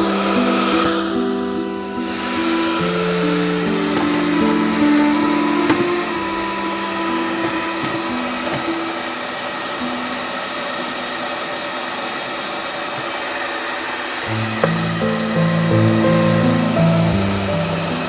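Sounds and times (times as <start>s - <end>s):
guitar music: 0.0s - 8.9s, 14.3s - 18.0s
hot-air blower whooshing: 0.0s - 18.0s.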